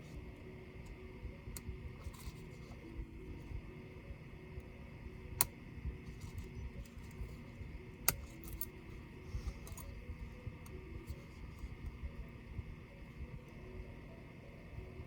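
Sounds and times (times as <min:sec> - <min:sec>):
low steady hum: 0:00.0 - 0:15.0
tools and laptop parts clicking: 0:08.0 - 0:08.8, 0:09.4 - 0:09.9.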